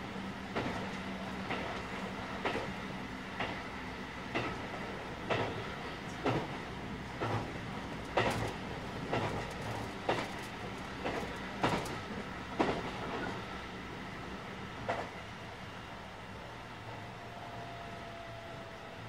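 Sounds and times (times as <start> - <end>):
steady train rumble: 0.0 - 19.0
train wheels clicking over rail joints: 0.5 - 13.5, 14.8 - 15.2.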